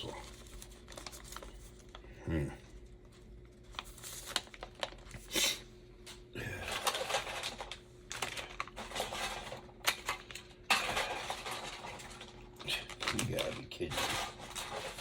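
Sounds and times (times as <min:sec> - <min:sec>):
packaging rustling: 0:00.0 - 0:02.0, 0:02.9 - 0:05.4, 0:06.7 - 0:15.0
small parts clicking and rattling: 0:06.7 - 0:15.0.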